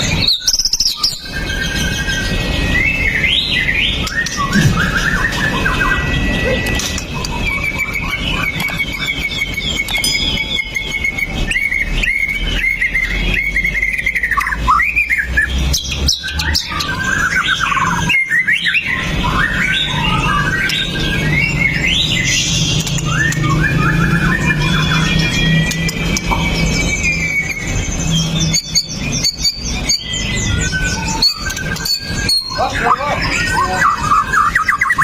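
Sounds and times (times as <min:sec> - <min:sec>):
songbird whistling and chattering: 0:00.0 - 0:35.0.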